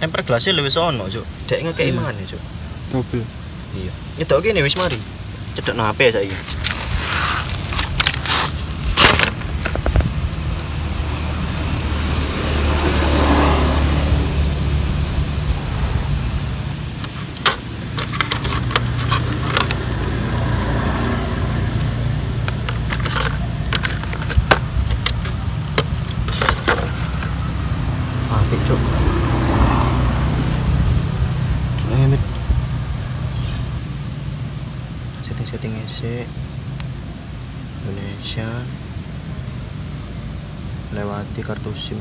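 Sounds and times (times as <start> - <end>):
road traffic drone: 0.0 - 42.0
packaging clicks and rattles: 17.0 - 20.0, 22.4 - 27.4.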